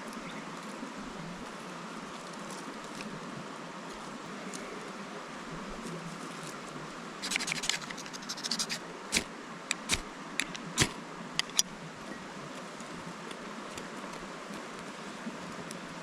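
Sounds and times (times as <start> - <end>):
steady background hiss: 0.0 - 16.0
quick scraping strokes: 7.2 - 11.0
sharp snaps: 7.2 - 11.0.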